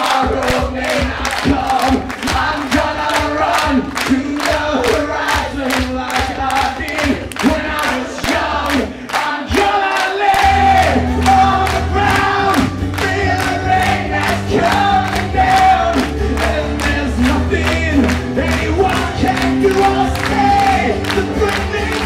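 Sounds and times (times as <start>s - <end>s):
crowd singing along: 0.0s - 22.0s
live acoustic rock music: 0.0s - 22.0s
low bass: 10.5s - 22.0s.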